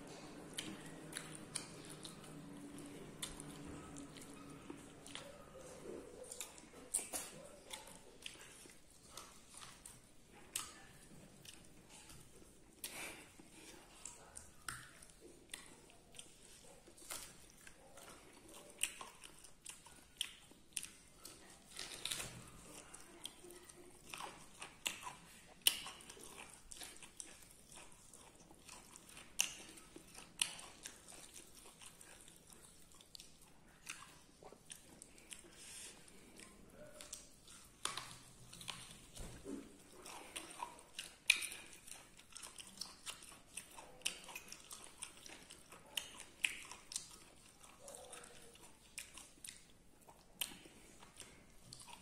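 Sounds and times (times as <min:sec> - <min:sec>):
person chewing and crunching food: 0:00.0 - 0:52.0.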